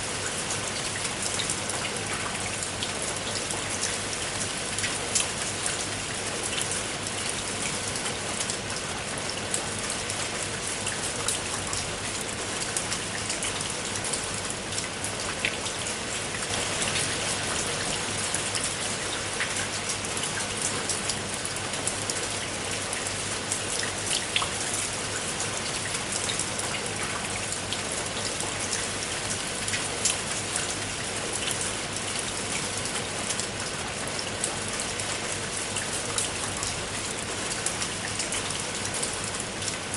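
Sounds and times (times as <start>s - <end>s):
rain on a tiled roof: 0.0s - 39.9s.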